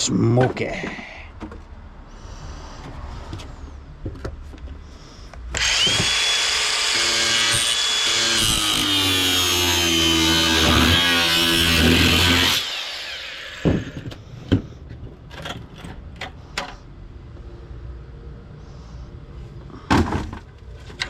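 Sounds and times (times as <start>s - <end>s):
electric drill whining: 5.5s - 14.1s.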